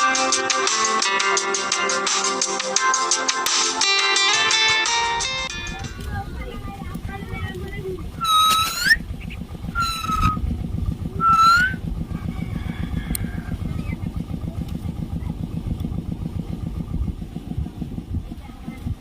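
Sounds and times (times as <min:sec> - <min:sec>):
motor running with low pulsing: 0:04.7 - 0:19.0
high whistle-like calls: 0:08.1 - 0:10.4, 0:11.2 - 0:11.8.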